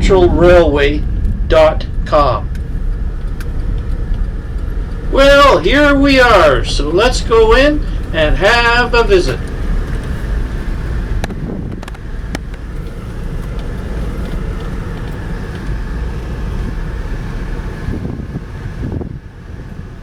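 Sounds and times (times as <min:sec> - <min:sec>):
car engine rumble: 0:00.0 - 0:20.0
road noise: 0:00.0 - 0:20.0.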